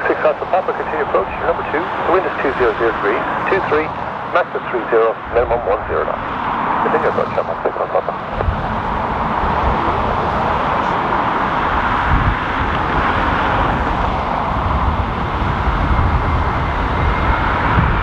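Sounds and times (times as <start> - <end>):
jet engines rushing: 0.0 - 18.0
wind buffeting microphone: 5.2 - 18.0.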